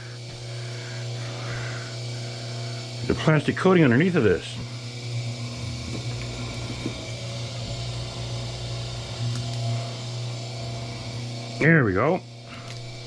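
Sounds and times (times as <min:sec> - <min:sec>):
machine motor humming: 0:00.0 - 0:13.0.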